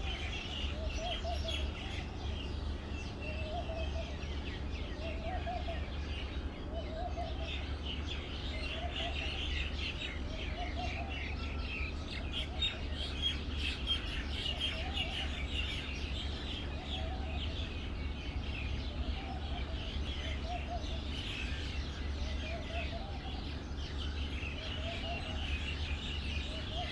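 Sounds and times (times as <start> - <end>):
low wavering bird call: 0.0 - 2.3, 3.2 - 7.8, 13.8 - 17.8, 18.8 - 26.9
songbirds chirping and twittering: 0.0 - 26.9.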